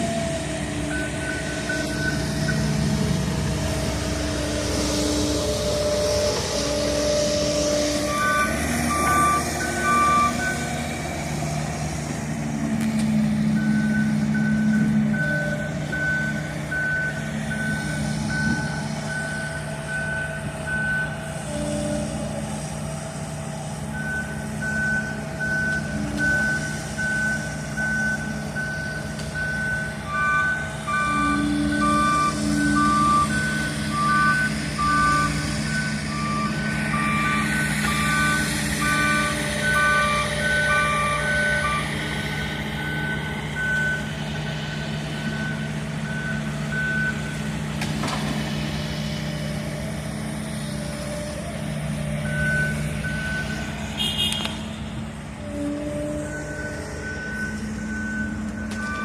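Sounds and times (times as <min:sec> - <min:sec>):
diesel engines running: 0:00.0 - 0:59.0
travel alarm beeping: 0:00.9 - 0:02.9, 0:13.6 - 0:21.2, 0:44.8 - 0:47.4, 0:52.2 - 0:54.5, 0:55.6 - 0:59.0.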